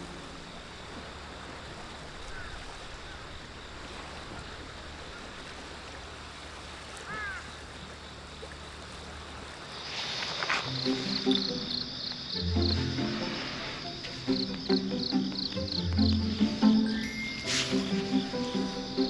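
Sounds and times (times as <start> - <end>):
sea waves washing: 0.0 - 19.0
brief high chirps: 16.8 - 18.8.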